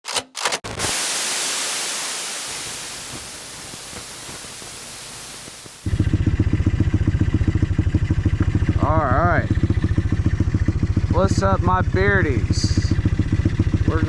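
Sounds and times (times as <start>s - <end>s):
static-like hiss: 0.7s - 6.2s
dirt bike engine running: 1.6s - 14.0s.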